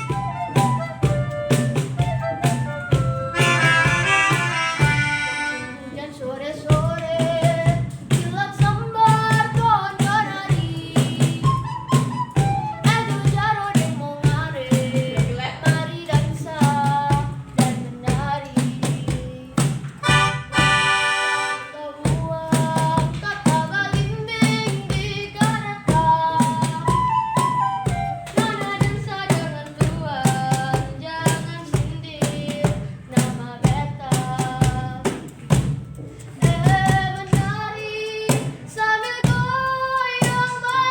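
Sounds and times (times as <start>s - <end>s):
regular tapping beat: 0.0s - 5.6s, 13.2s - 37.6s
children's ensemble playing folk song: 0.0s - 40.9s.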